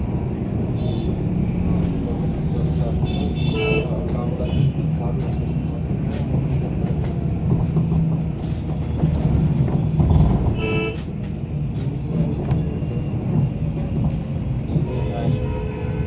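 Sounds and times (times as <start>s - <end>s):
road traffic: 0.0s - 16.0s
car horn honk: 3.1s - 3.9s, 10.6s - 11.1s, 14.9s - 16.0s.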